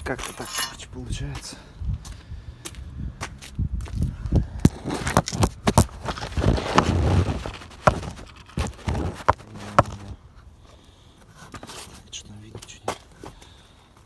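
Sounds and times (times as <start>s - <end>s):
metal scraping: 0.0s - 0.9s.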